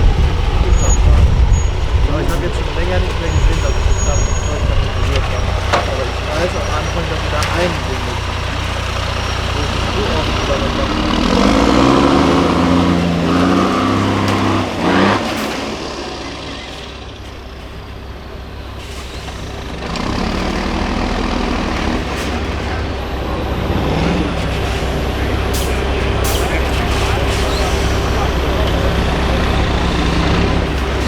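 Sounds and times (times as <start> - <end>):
truck diesel engine revving: 0.0 - 31.0.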